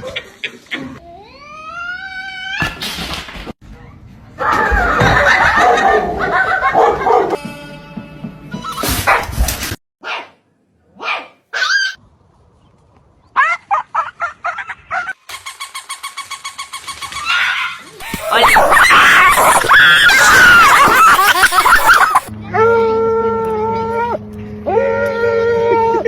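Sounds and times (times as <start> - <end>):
dog barking: 5.6 - 7.4, 9.1 - 9.3, 10.0 - 10.4, 11.0 - 12.0
music: 7.4 - 8.9.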